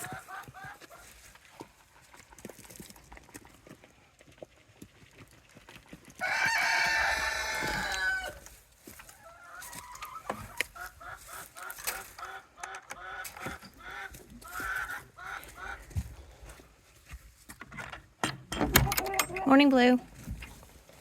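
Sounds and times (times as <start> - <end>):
chicken clucking: 0.0 - 1.4, 6.2 - 16.3
rooster crowing: 6.2 - 8.4.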